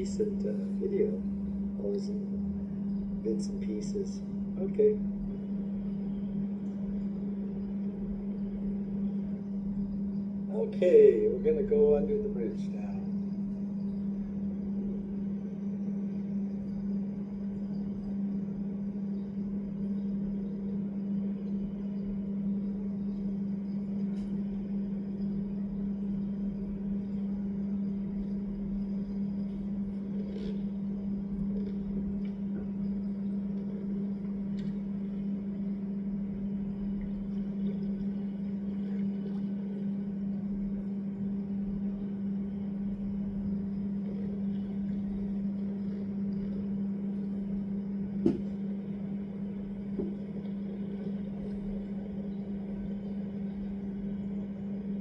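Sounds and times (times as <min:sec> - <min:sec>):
steady low hum: 0:00.0 - 0:55.0
faint ticks: 0:26.1 - 0:35.8.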